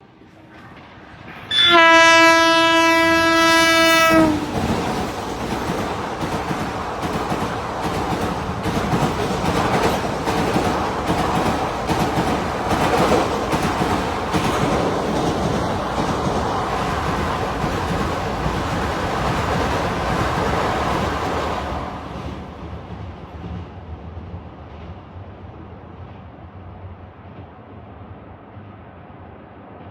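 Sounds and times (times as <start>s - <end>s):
train rumble: 0.0s - 29.9s
train horn blast: 1.5s - 4.7s.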